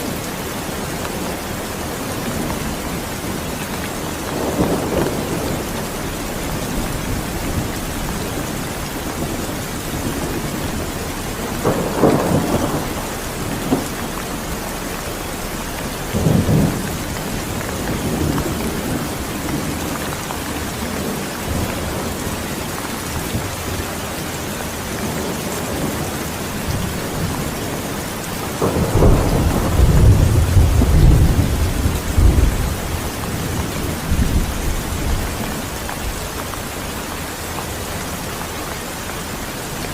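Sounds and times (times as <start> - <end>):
steady rain: 0.0 - 39.9
thunder rumbling: 0.2 - 39.9.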